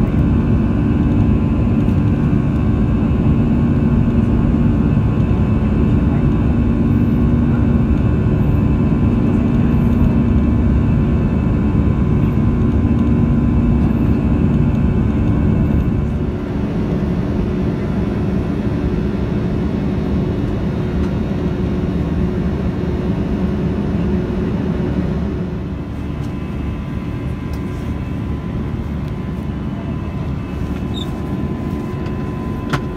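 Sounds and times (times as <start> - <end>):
constant cabin hum: 0.0 - 32.9
jet engine and airflow noise: 0.0 - 32.9.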